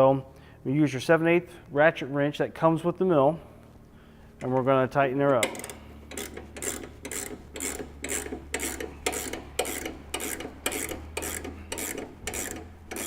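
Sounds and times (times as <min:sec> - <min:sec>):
ratchet wrench rasping: 0:05.4 - 0:13.0.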